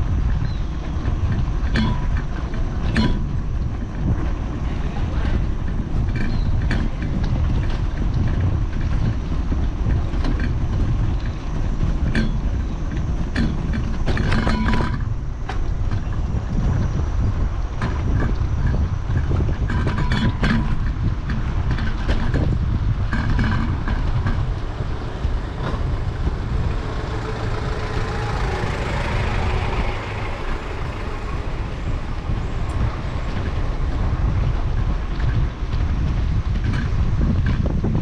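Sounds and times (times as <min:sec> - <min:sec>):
road noise: 0:00.0 - 0:38.0
wind buffeting microphone: 0:00.0 - 0:38.0
rushing noise: 0:20.6 - 0:38.0.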